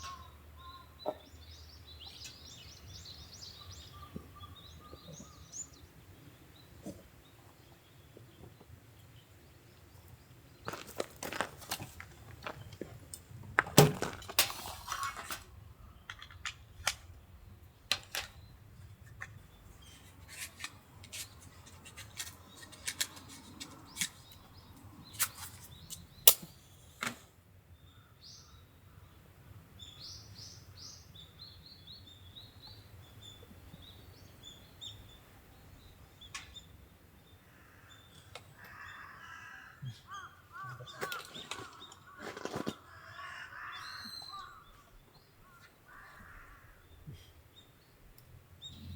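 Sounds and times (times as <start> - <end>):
small birds chirping: 0.0 - 13.6, 14.9 - 27.0, 27.7 - 48.9
sharp clicks and knocks: 17.9 - 18.4.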